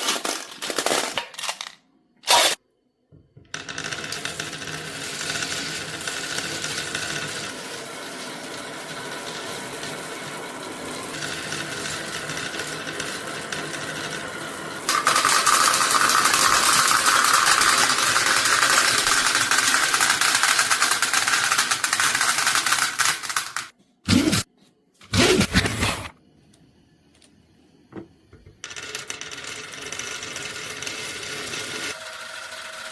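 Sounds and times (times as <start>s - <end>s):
marbles rattling along track: 3.6s - 7.6s, 14.9s - 23.7s.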